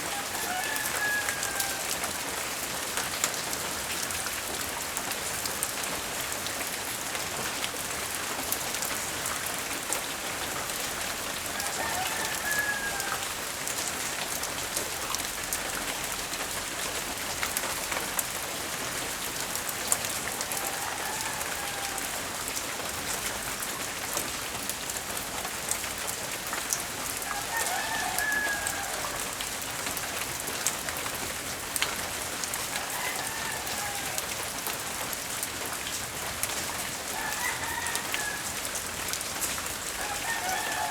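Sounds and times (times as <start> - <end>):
faint rooster crowing: 0.0 - 2.2, 11.5 - 13.5, 20.0 - 22.8, 27.2 - 29.5, 32.4 - 35.0, 36.5 - 40.9
light rain pattering: 0.0 - 40.9.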